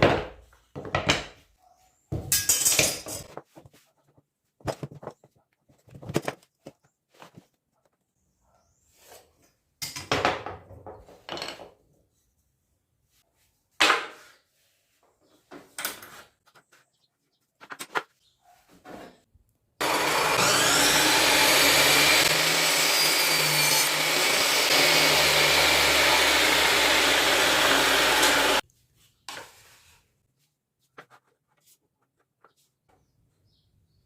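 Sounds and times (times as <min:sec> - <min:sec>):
power tool motor running: 0:19.8 - 0:28.6.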